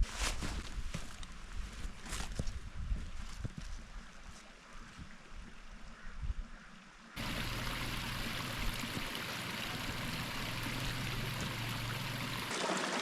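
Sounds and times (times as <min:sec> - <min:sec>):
running water rushing: 0:07.2 - 0:13.0.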